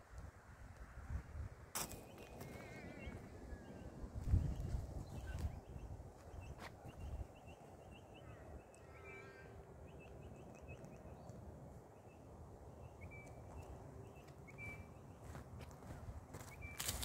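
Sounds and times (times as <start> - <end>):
bird chirping: 2.0 - 15.4
whistled bird notes: 14.4 - 15.0.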